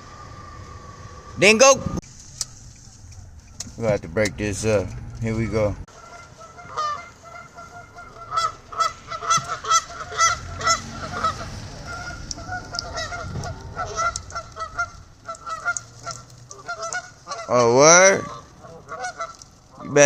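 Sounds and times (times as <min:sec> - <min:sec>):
geese honking: 0:00.0 - 0:20.0.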